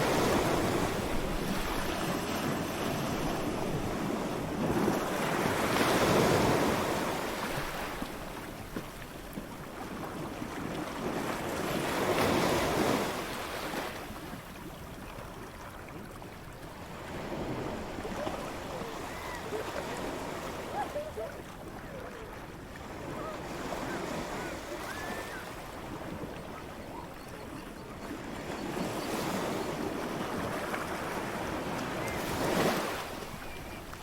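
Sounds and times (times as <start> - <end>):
waves breaking on a beach: 0.0 - 34.0.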